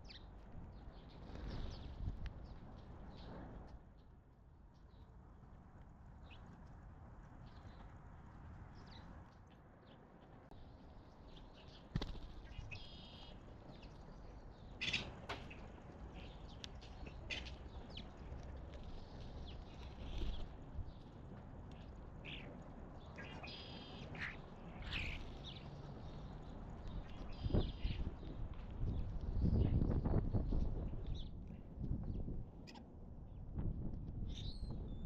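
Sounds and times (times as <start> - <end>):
birds chirping and calling: 23.2 - 25.6.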